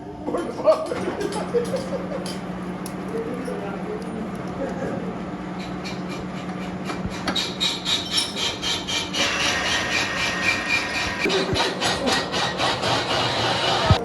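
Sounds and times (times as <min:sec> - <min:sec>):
workshop machinery humming: 0:00.0 - 0:14.0
rasping scraping strokes: 0:07.2 - 0:14.0.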